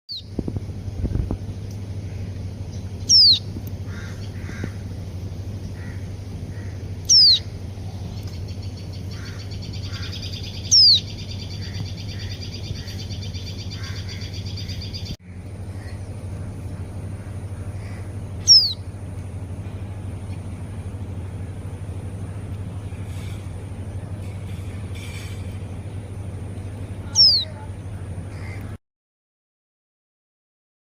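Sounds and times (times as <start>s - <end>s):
nightingale singing: 0.1s - 0.3s, 2.7s - 4.5s, 7.0s - 15.2s, 18.0s - 18.9s, 27.0s - 27.6s
steady low hum: 0.1s - 28.8s.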